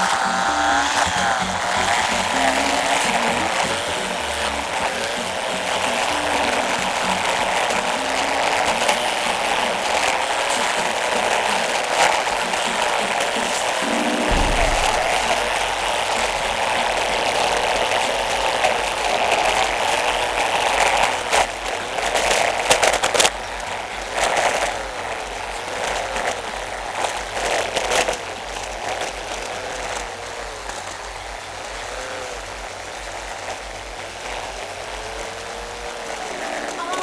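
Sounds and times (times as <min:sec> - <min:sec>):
car engine accelerating: 0:00.0 - 0:29.4
sharp bursts of noise: 0:00.0 - 0:37.0.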